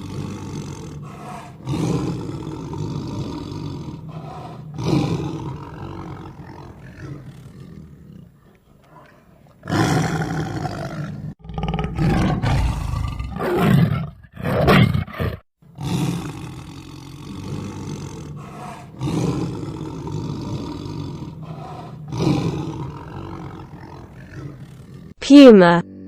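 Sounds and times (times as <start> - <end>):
tiger roaring and growling: 0.0 - 26.0.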